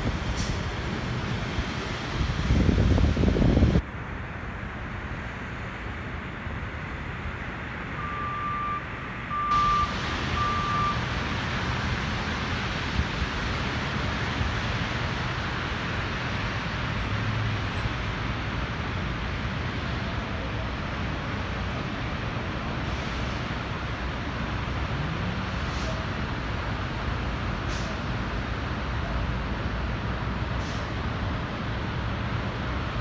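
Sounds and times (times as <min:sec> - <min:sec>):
passing vehicles: 0:00.0 - 0:33.0
short electronic beeps: 0:08.0 - 0:11.0.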